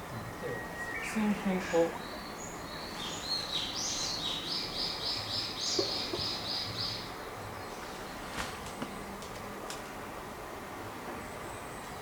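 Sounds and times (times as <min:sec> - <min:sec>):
steady background noise: 0:00.0 - 0:12.0
bird singing high notes: 0:00.4 - 0:05.0.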